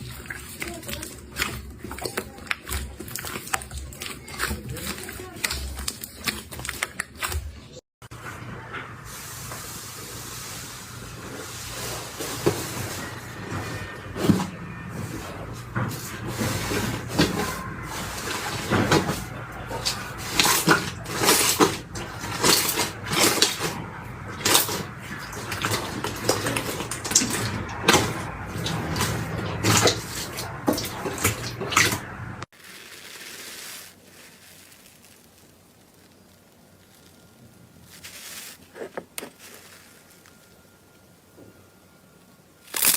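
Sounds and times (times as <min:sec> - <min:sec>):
slime sticky hiss: 0:32.6 - 0:40.4
slime squishing and popping: 0:42.7 - 0:42.9.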